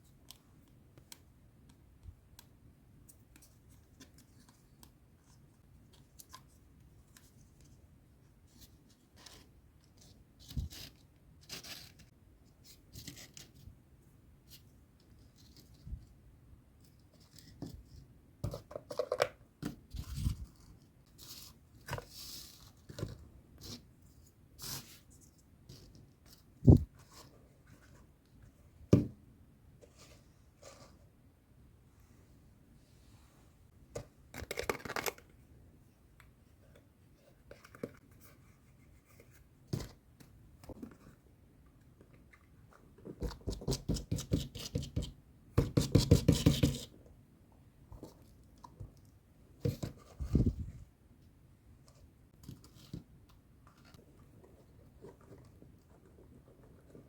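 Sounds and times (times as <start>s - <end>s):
plastic packaging rustling and clicking: 34.3s - 35.3s.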